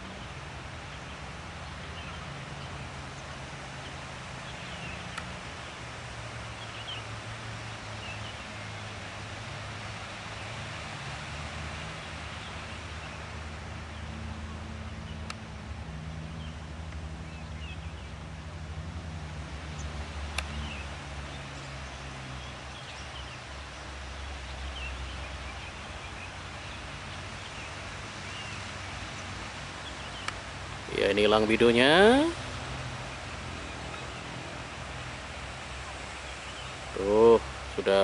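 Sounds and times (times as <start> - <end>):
soft hiss: 0.0 - 38.0
bird chirps: 6.6 - 7.1, 19.7 - 32.3.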